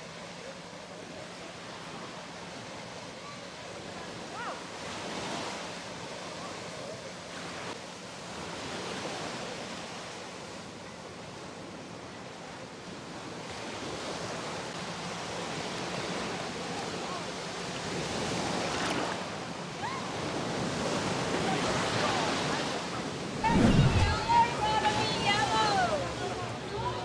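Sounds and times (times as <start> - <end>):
surf washing onto beach: 20.2 - 26.4.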